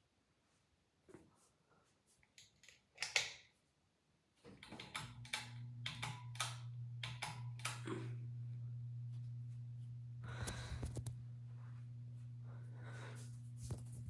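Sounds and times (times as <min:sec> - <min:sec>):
fan clicking and ticking: 0:04.6 - 0:07.8
ceiling fan motor humming: 0:05.0 - 0:14.0.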